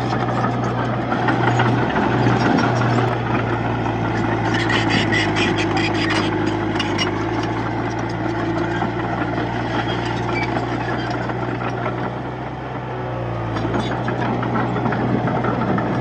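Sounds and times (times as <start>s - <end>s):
bulldozer diesel engine running: 0.0s - 16.0s.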